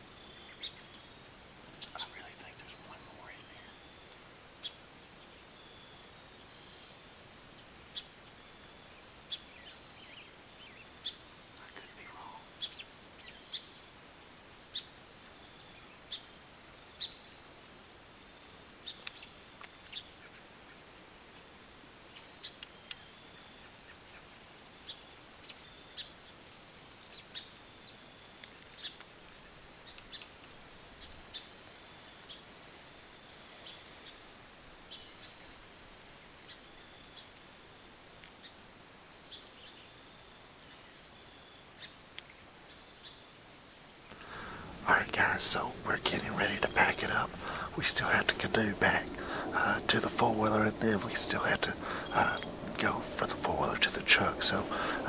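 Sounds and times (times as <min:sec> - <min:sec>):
faint background hiss: 0:00.0 - 0:55.0
birds chip calls: 0:00.3 - 0:05.4, 0:07.6 - 0:13.8, 0:44.0 - 0:55.0.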